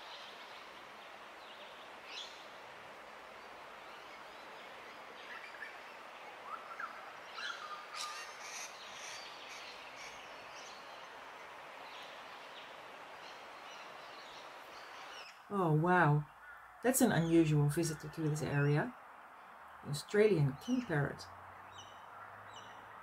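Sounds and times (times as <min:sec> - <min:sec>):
bush ambience hiss: 0:00.0 - 0:15.6.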